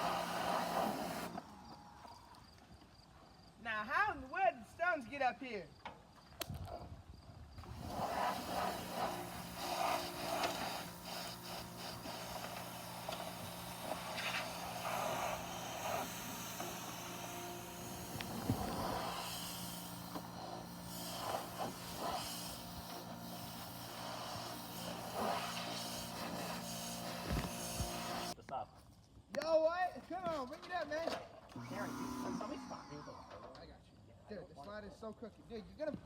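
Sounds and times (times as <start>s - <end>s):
broad hiss: 0.0s - 1.8s, 7.6s - 28.4s
pressure washer humming: 0.0s - 2.2s, 7.6s - 28.4s, 31.6s - 32.6s.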